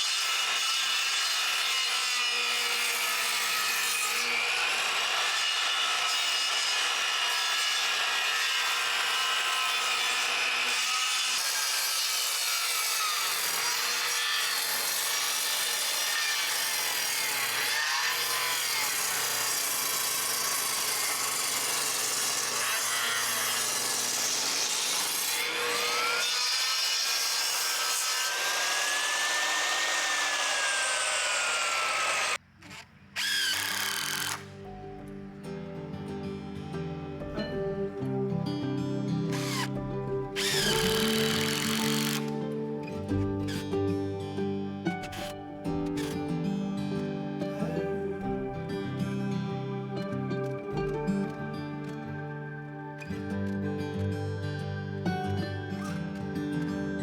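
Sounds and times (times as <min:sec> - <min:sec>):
wood being sawn: 0:00.0 - 0:34.8, 0:39.2 - 0:43.7.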